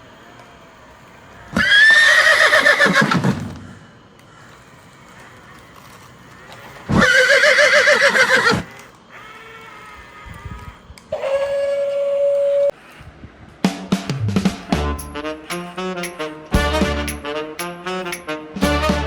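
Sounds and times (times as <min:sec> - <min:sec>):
quavering animal calls: 0:01.4 - 0:13.0.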